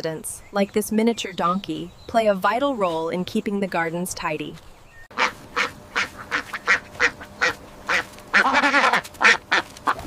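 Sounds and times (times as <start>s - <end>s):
duck quacking: 5.1s - 10.0s.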